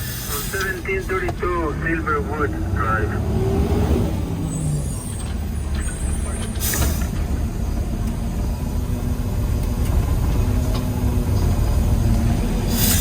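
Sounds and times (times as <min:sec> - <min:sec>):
truck engine rumbling: 0:00.0 - 0:13.0
air hiss: 0:12.7 - 0:13.0.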